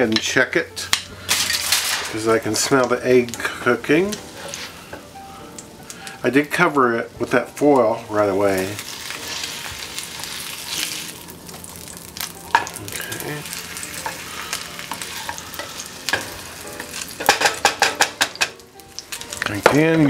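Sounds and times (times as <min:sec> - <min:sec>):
spatulas clicking and scraping: 0:00.2 - 0:05.0, 0:13.8 - 0:20.0
sandwich sizzling in a pan: 0:00.8 - 0:20.0.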